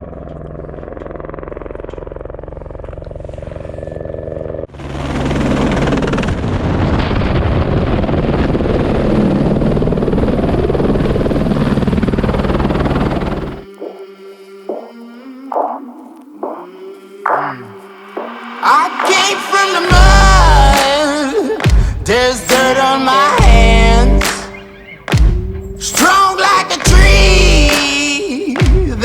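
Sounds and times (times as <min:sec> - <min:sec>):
helicopter rotor beating: 0:00.0 - 0:24.4
music: 0:18.6 - 0:29.0.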